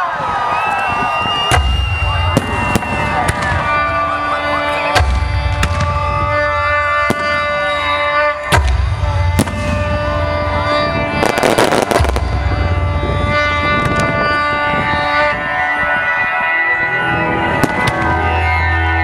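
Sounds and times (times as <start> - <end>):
music with long held tones: 0.0 - 19.0
low booming rumbles: 1.0 - 4.2, 5.0 - 7.8, 8.4 - 15.6
firework bangs: 1.3 - 4.3, 5.0 - 14.5, 17.6 - 18.2
firework crackling: 9.4 - 14.3.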